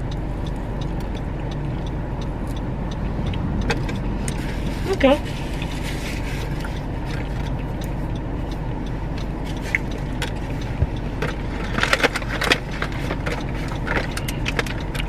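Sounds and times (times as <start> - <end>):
car engine idling: 0.0 - 15.0
sharp crackling clicks: 6.4 - 15.0.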